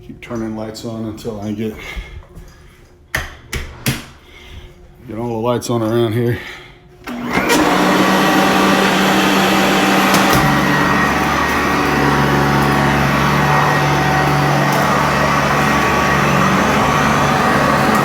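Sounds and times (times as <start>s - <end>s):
upright vacuum cleaner running: 7.1s - 18.0s.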